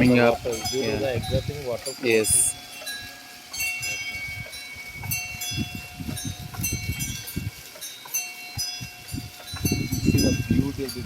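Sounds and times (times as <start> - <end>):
small metal bells chiming: 0.0 - 11.0.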